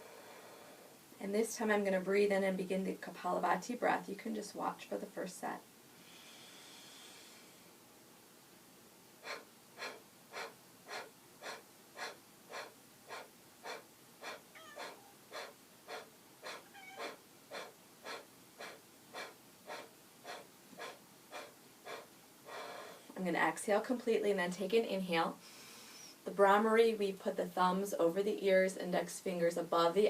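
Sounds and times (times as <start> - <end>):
long inhale: 0.0 - 1.0, 6.0 - 7.8, 9.2 - 23.2, 25.4 - 26.3
forceful exhales through nose: 6.0 - 7.8, 9.2 - 23.1.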